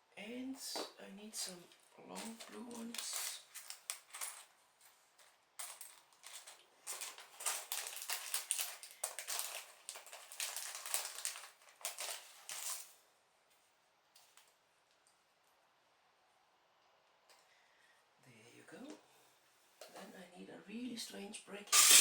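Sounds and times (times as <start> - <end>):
plastic bricks clattering: 5.6 - 12.9, 21.7 - 22.0.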